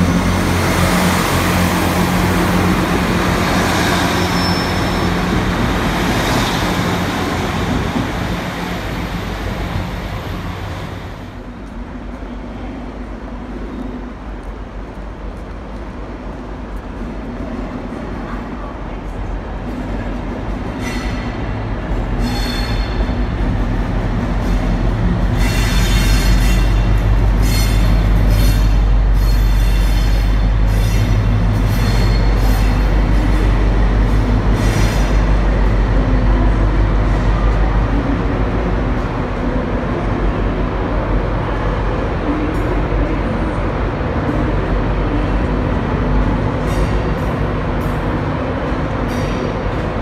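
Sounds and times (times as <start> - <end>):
diesel locomotive engine droning: 0.0 - 50.0
wheels squealing on rails: 3.3 - 8.1, 20.6 - 23.5, 24.4 - 35.5.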